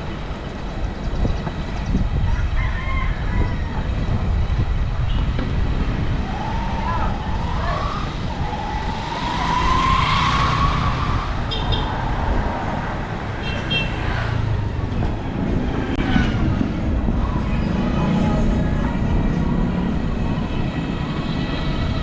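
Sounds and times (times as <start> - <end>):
city road traffic rumble: 0.0 - 22.0
wavering rising tone: 6.1 - 12.4.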